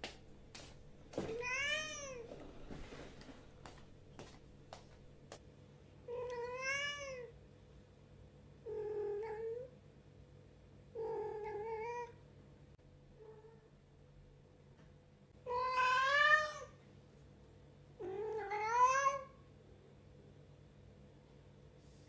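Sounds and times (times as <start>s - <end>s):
cat meowing: 1.3s - 2.3s, 6.1s - 7.3s, 15.5s - 16.8s, 18.0s - 19.3s.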